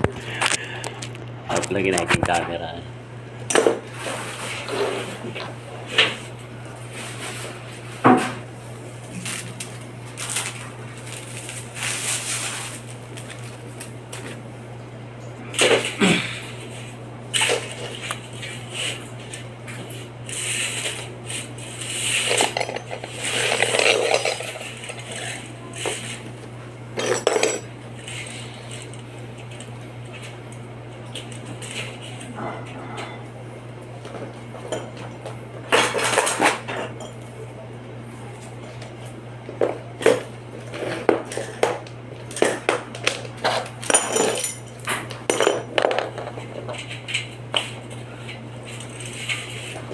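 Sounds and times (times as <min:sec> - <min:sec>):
steady low hum: 0:00.0 - 0:49.9
metallic clinks and scrapes: 0:20.3 - 0:26.3.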